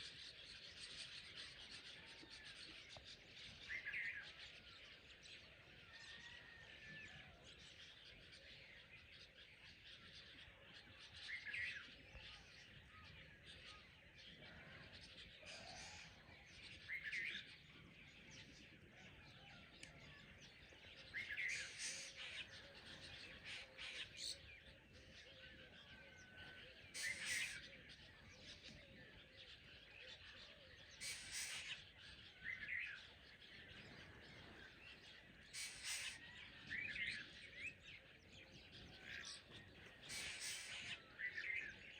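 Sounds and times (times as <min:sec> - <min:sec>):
birds chirping quietly: 0:00.0 - 0:41.9
loud short bird call: 0:35.6 - 0:36.2.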